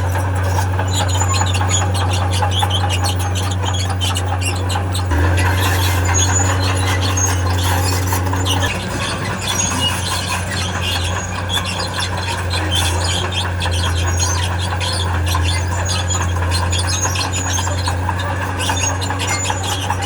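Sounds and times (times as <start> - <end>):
crawler tracks squeaking: 0.0 - 20.0
diesel engine running: 0.0 - 20.0.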